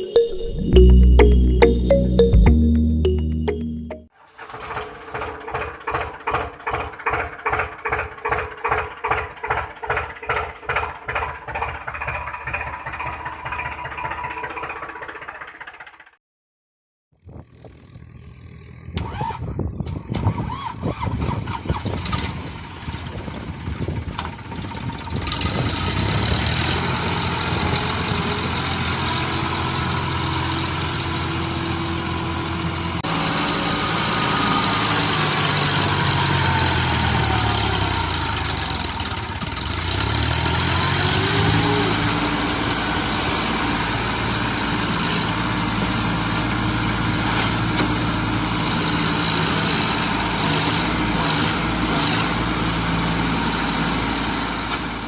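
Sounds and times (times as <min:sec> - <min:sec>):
tractor engine revving: 0:24.5 - 0:54.6.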